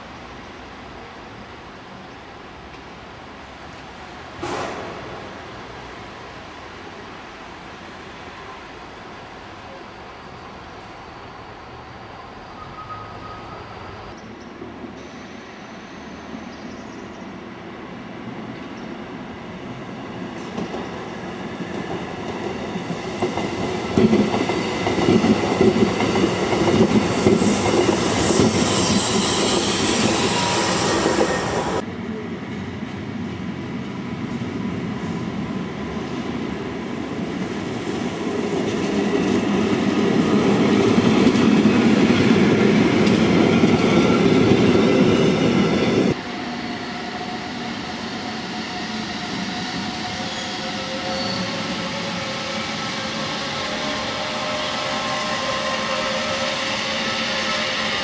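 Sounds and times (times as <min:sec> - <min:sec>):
train wheels rumbling on rails: 0:02.0 - 0:08.5, 0:17.9 - 0:58.0
high wheel squeal: 0:09.7 - 0:14.2, 0:27.0 - 0:31.8, 0:43.7 - 0:58.0.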